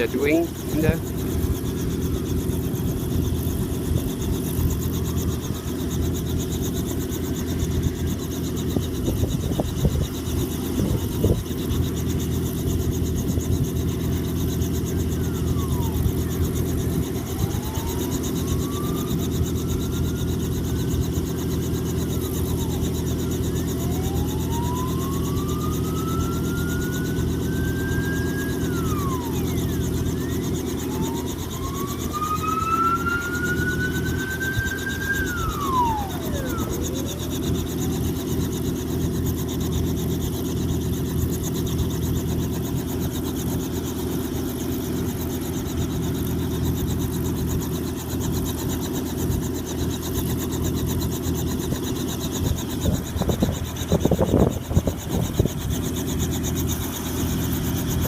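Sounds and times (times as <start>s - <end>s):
helicopter engine and rotors: 0.0s - 58.0s
faint rising wail: 30.2s - 37.3s.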